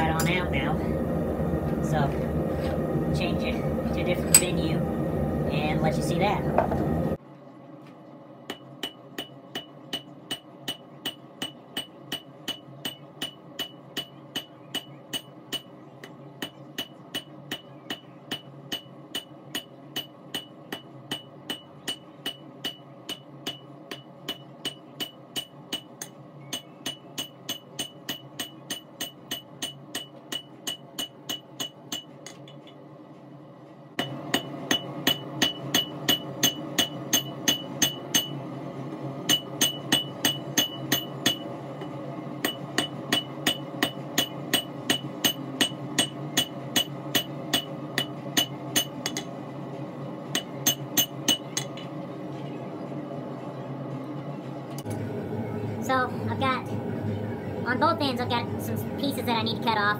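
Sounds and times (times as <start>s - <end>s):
hammer striking steel on anvil: 4.2s - 4.7s, 8.5s - 32.5s, 34.0s - 38.4s, 39.3s - 49.3s, 50.3s - 51.9s.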